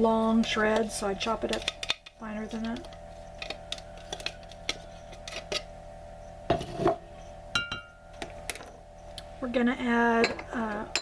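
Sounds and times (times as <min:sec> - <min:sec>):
faint steady hum: 0:00.0 - 0:11.0
utensils tapping against bowl: 0:00.3 - 0:05.7, 0:10.2 - 0:11.0.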